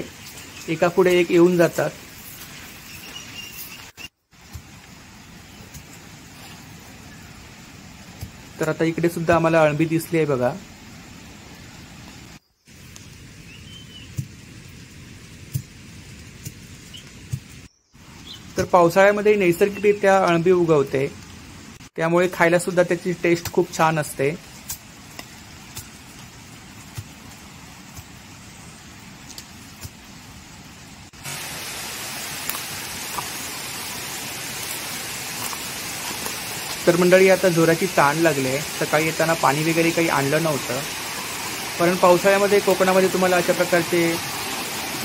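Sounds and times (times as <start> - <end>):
steady rain: 0.0 - 45.0
water rushing: 25.4 - 45.0.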